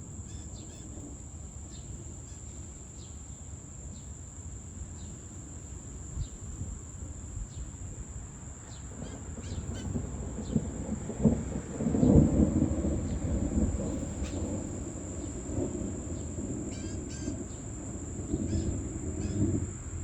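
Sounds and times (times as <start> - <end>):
crickets trilling: 0.0 - 20.0
rain: 0.0 - 20.0
distant thunder: 6.1 - 20.0.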